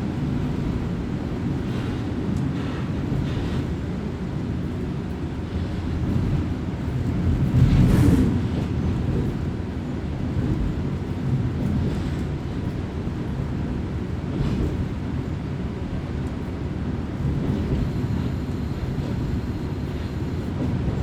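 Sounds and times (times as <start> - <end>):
railcar engine and wheels rumbling: 0.0 - 21.0.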